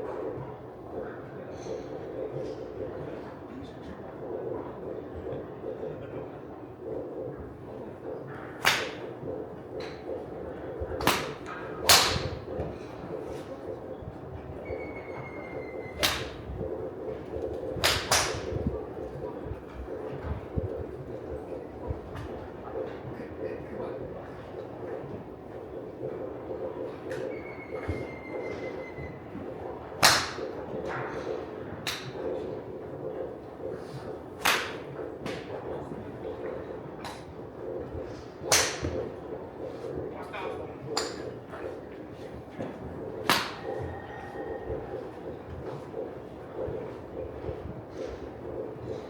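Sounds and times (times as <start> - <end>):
golf clubs striking balls: 8.4 - 14.6, 15.9 - 23.0, 29.2 - 36.1, 38.1 - 43.9.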